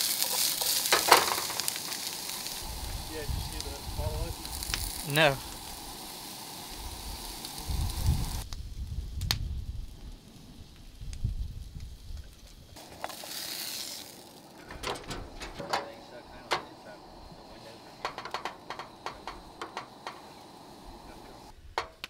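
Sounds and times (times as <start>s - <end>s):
campfire crackling and popping: 0.0s - 22.0s
meat and onions sizzling: 0.0s - 22.0s
wind rumbling on microphone: 2.4s - 6.0s, 6.7s - 12.8s.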